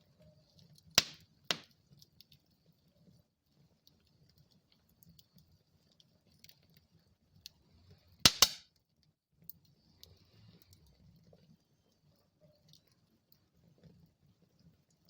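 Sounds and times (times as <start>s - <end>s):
wood fire crackling: 0.0s - 15.0s
sharp pops from fire: 0.6s - 2.4s, 8.2s - 8.8s.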